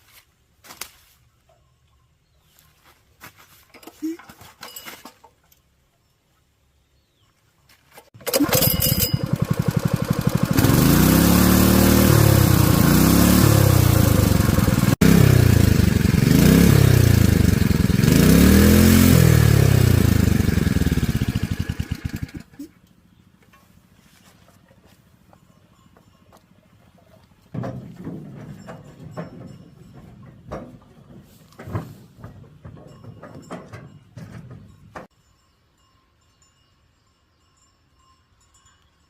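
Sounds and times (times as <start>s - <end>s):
engine starting and revving: 8.2s - 22.7s.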